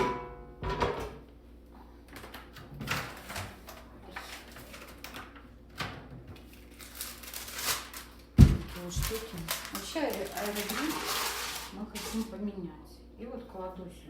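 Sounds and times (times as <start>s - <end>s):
kitchen items clicking and rustling: 2.1s - 12.4s.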